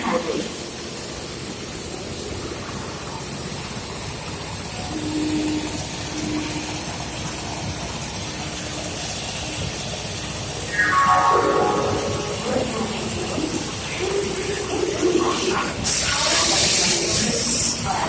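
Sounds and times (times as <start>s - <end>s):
water jet rushing onto track: 0.0s - 18.0s
loud sound falling in pitch: 10.7s - 13.4s
station din: 10.7s - 13.7s.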